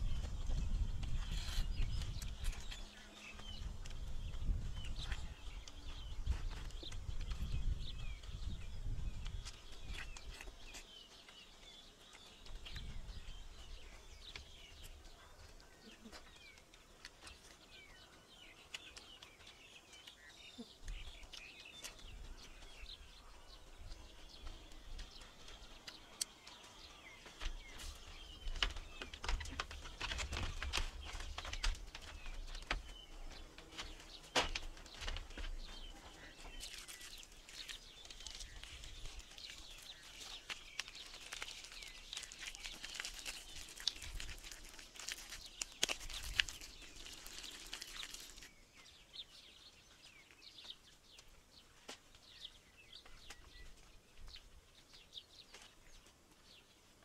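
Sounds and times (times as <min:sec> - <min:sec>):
birds chirping and calling: 0:00.0 - 0:56.7.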